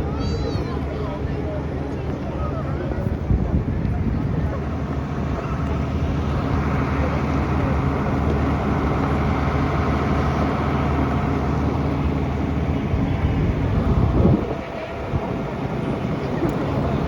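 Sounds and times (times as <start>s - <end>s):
tractor engine running: 1.5s - 17.0s.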